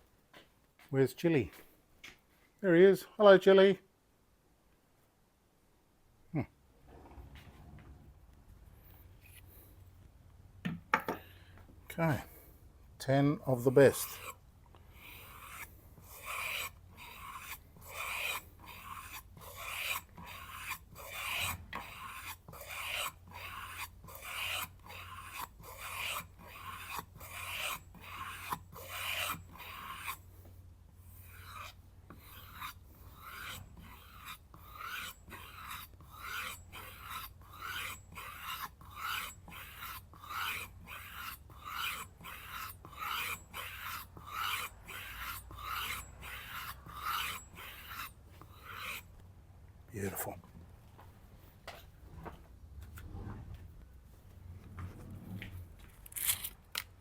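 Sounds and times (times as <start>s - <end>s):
knife scraping on leather strop: 15.4s - 30.2s, 56.0s - 56.9s.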